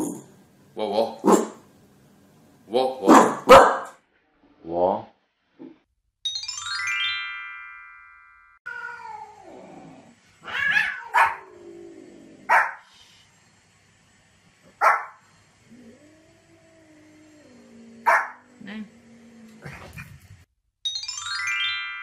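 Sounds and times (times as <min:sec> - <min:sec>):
dog barking: 0:01.2 - 0:01.6, 0:03.0 - 0:04.0, 0:10.8 - 0:11.4, 0:12.5 - 0:12.8, 0:14.8 - 0:15.2, 0:18.0 - 0:18.4
dog crying: 0:10.4 - 0:11.5.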